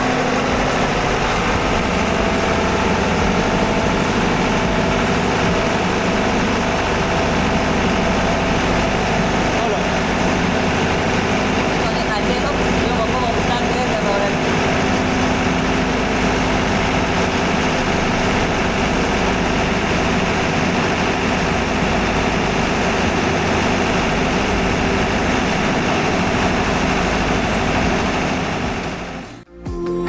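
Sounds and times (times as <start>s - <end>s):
diesel engine running: 0.0s - 29.5s.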